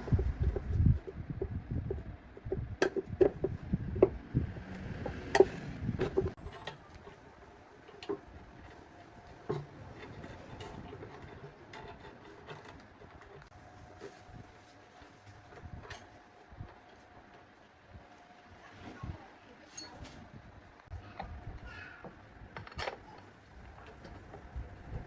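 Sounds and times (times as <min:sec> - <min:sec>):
low rumble: 0:00.0 - 0:06.4.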